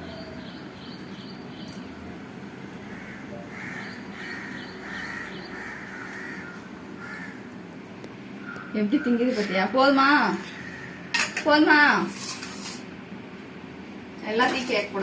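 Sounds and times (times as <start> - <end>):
crows cawing: 2.8 - 7.6, 8.4 - 9.5, 10.4 - 11.2.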